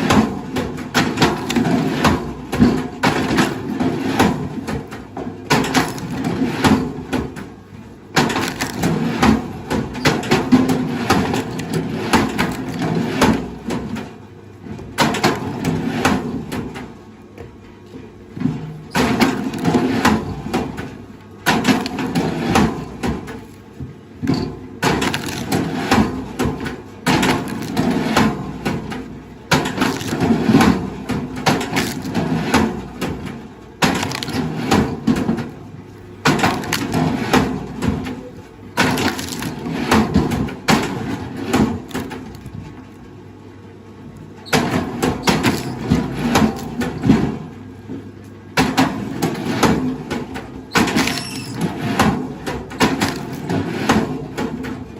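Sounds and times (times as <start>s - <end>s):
wood cracking and splintering: 5.5s - 6.9s, 8.2s - 13.6s, 19.0s - 23.7s, 24.8s - 35.2s, 36.2s - 38.2s, 38.8s - 42.8s, 44.5s - 47.1s, 50.7s - 54.2s.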